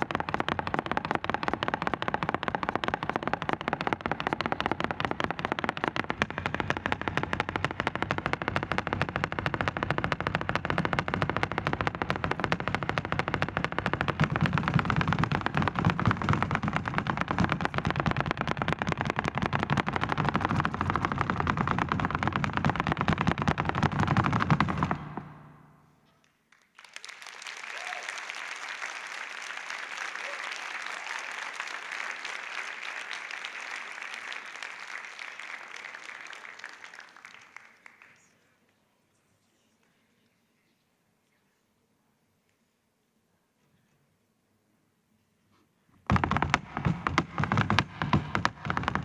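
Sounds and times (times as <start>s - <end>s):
flamenco footwork taps on stage: 0.0s - 25.8s, 46.1s - 49.0s
audience applauding: 26.5s - 38.5s.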